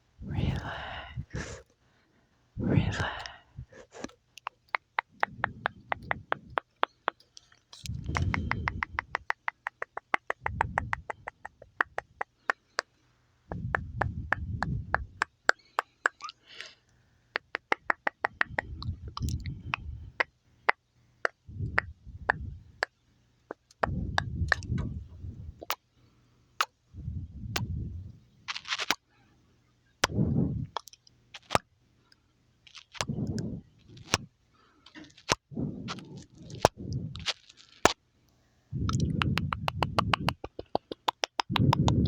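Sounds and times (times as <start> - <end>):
wet mouth clicks: 0.3 - 1.6, 2.6 - 16.7, 17.4 - 25.0, 25.6 - 25.8, 30.0 - 31.6, 32.7 - 34.3, 34.9 - 38.0, 38.8 - 42.0.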